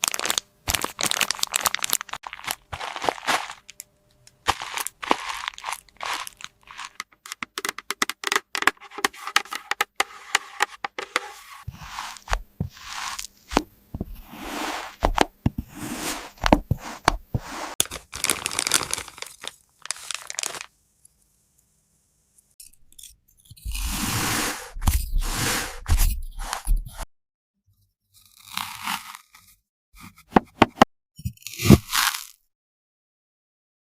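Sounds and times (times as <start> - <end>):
plastic packaging crinkling and tearing: 0.0 - 8.4, 17.8 - 20.7.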